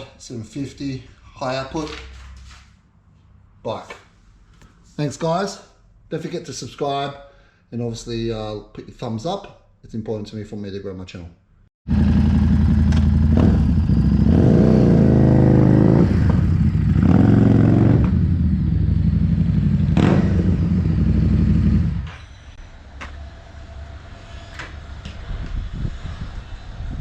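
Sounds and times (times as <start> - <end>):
motorcycle engine revving: 11.9 - 22.1.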